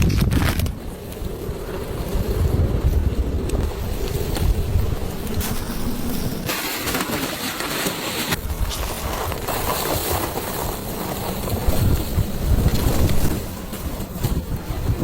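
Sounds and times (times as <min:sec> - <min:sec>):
strong wind buffeting microphone: 0:00.0 - 0:06.6, 0:08.3 - 0:15.0.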